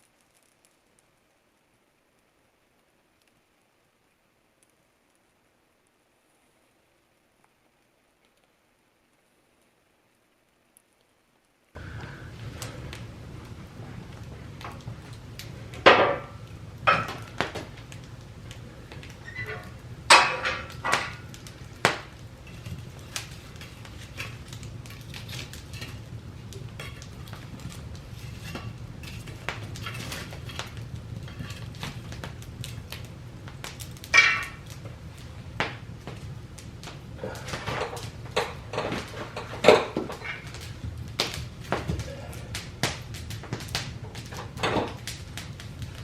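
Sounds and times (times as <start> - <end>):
low steady hum: 0.0 - 46.0
objects clinking and knocking: 19.3 - 21.2, 37.4 - 40.6.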